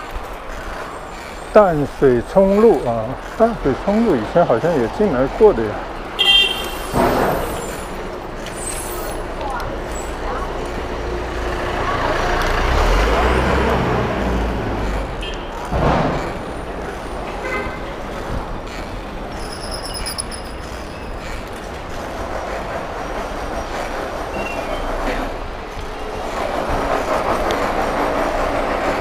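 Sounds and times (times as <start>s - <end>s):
vehicle passing: 0.0s - 19.4s
street traffic: 0.0s - 29.0s
high squeal: 6.5s - 9.2s, 19.3s - 21.2s.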